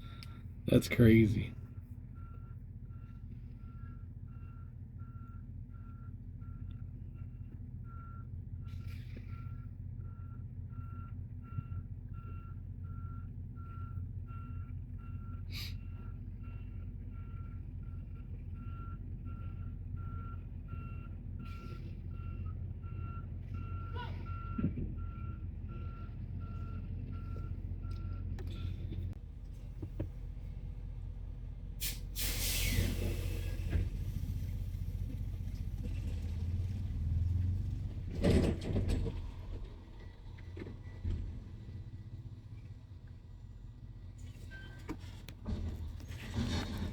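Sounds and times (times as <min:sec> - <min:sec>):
truck backup alarm beeping: 0:00.0 - 0:29.9
diesel engine running: 0:00.0 - 0:46.9.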